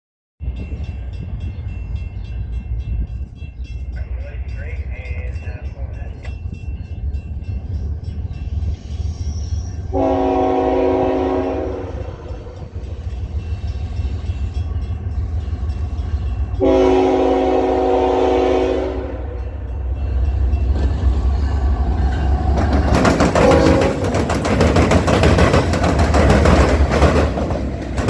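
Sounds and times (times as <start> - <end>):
train rumble: 0.4 - 28.0
locomotive horn blasts: 9.9 - 12.7, 16.6 - 19.7, 23.4 - 24.1
wheel and rail clatter: 20.1 - 28.0.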